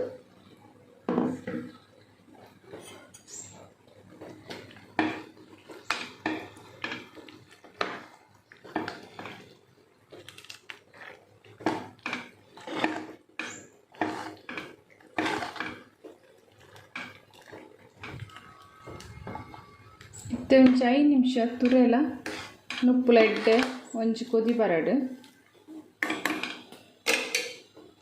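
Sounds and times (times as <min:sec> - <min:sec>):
spoon scraping metal pots: 0:10.9 - 0:24.6, 0:25.7 - 0:27.7.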